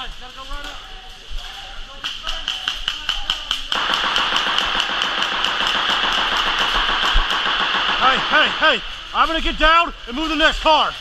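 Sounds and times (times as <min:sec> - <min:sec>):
airsoft guns firing: 0:02.0 - 0:09.5
steady rushing noise: 0:03.8 - 0:10.6.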